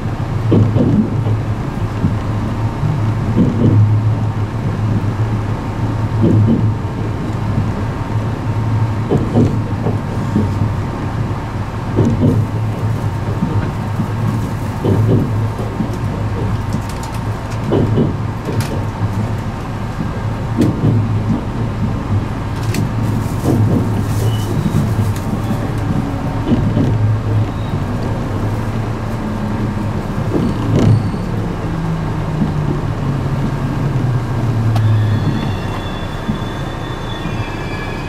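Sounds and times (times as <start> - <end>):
train rumble inside carriage: 0.0 - 38.0
wheels knocking over rail joints: 0.4 - 36.4
train motor tone stepping down: 29.3 - 38.0.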